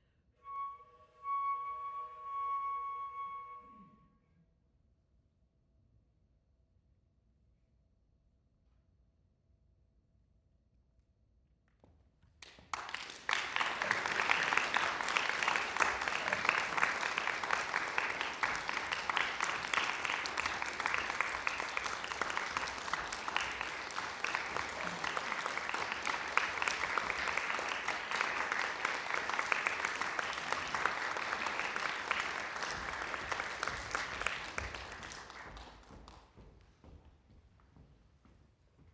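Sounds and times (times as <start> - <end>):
audience applauding: 12.4 - 36.4.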